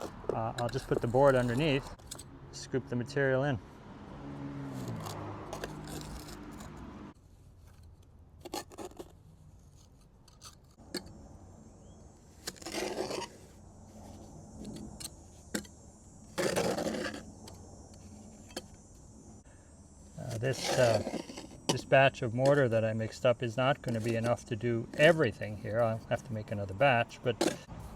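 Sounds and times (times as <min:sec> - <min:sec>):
pointing tool scraping mortar: 0:00.0 - 0:02.2, 0:04.8 - 0:06.8, 0:07.6 - 0:11.2, 0:12.4 - 0:13.6, 0:20.1 - 0:27.7.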